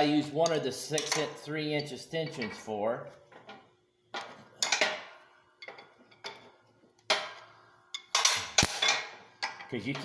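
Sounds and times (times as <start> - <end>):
metal tools clinking together: 0.0 - 1.4, 8.0 - 10.0.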